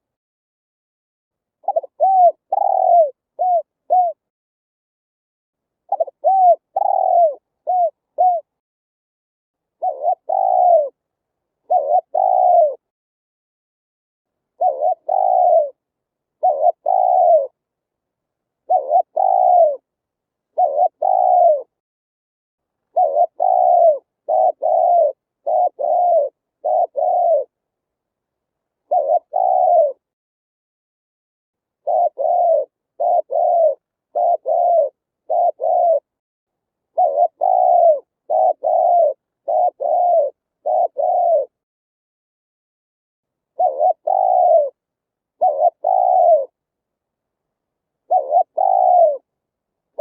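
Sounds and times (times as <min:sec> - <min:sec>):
dove cooing: 0:01.6 - 0:04.2, 0:05.9 - 0:08.6, 0:09.8 - 0:11.0, 0:11.6 - 0:12.9, 0:14.6 - 0:15.8, 0:16.4 - 0:17.6, 0:18.6 - 0:19.9, 0:20.5 - 0:21.8, 0:22.9 - 0:27.6, 0:28.8 - 0:30.1, 0:31.8 - 0:36.1, 0:36.9 - 0:41.6, 0:43.5 - 0:46.6, 0:48.0 - 0:49.3.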